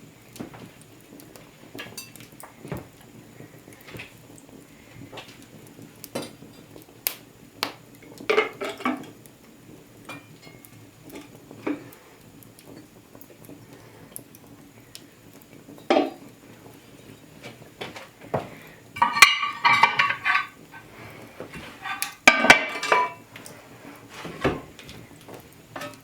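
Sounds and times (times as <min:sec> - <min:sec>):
utensils clinking against dishes: 0:19.0 - 0:20.9, 0:21.6 - 0:23.2.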